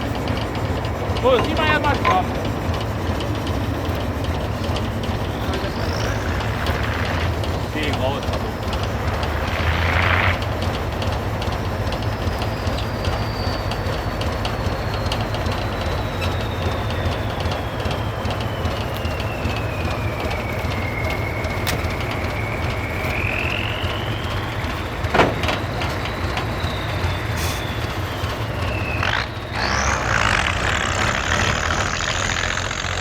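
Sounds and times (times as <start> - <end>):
diesel truck engines running: 0.0 - 33.0
high thin whistle: 11.8 - 30.7.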